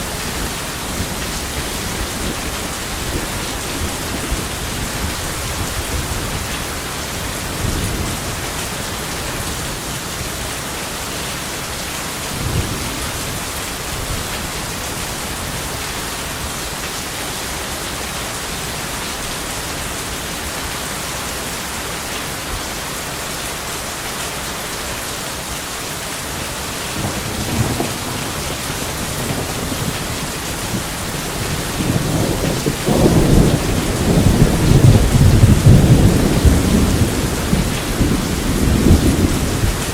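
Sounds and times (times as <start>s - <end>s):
heavy rain: 0.0s - 39.9s
thunder rolling: 27.0s - 39.9s.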